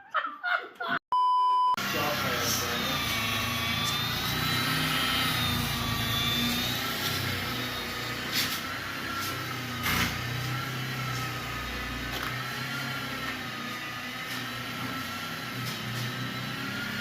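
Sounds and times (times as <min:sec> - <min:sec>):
motor running with wavering whine: 0:01.8 - 0:17.0.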